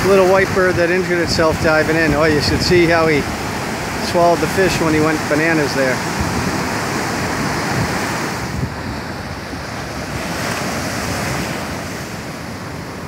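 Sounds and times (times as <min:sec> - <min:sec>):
surf washing on beach: 0:00.0 - 0:13.0
wind on microphone: 0:00.0 - 0:13.0.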